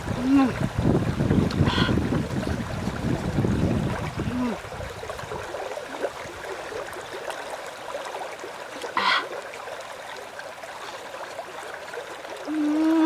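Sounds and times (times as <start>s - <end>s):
water trickling and gurgling: 0.0s - 13.0s.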